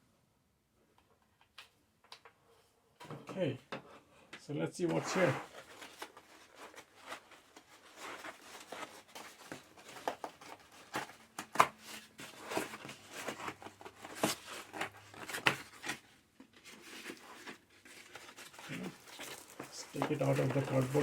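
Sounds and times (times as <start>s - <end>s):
cardboard and wrapping rustling: 4.8s - 21.0s.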